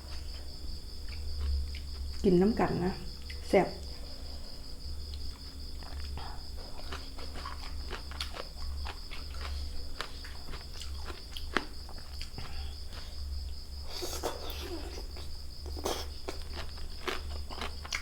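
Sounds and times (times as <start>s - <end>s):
crickets chirring: 0.0s - 18.0s
people eating seafood: 13.8s - 18.0s.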